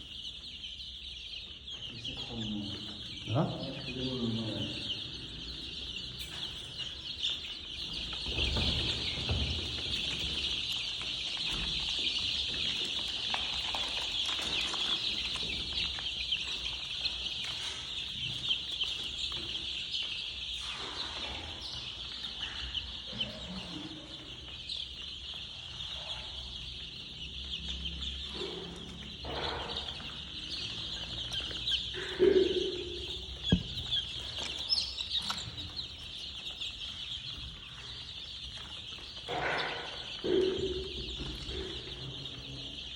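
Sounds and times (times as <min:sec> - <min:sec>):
chicks peeping: 0:00.0 - 0:42.9.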